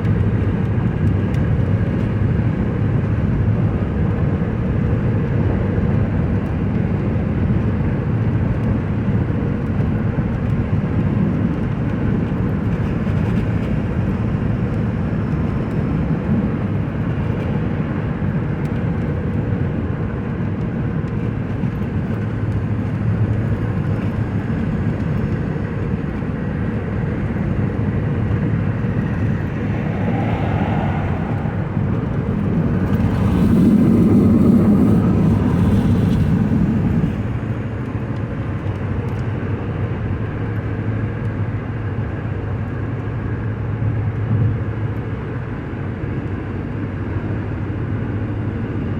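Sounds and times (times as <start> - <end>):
car road and engine noise: 22.2 - 38.2.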